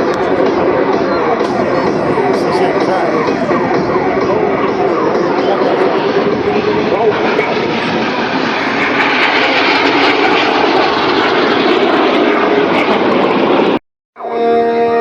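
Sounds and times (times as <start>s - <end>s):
music: 0.0s - 7.1s, 14.2s - 15.0s
aircraft engine rushing: 0.0s - 13.8s.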